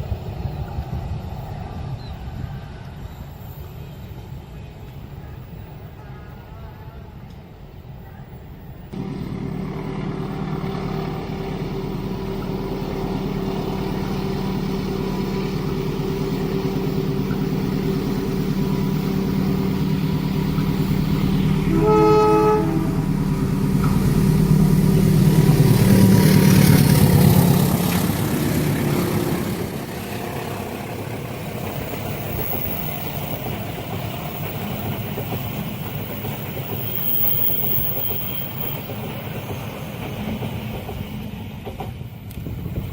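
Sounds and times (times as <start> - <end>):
diesel locomotive engine drone: 0.0 - 42.9
train cars rolling by: 0.0 - 42.9
train horn: 9.0 - 17.4, 18.8 - 23.5.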